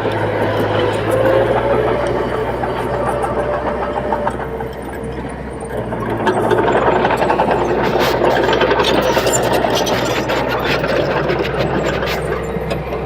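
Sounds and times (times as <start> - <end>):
bulldozer diesel engine rattling: 0.0 - 13.0.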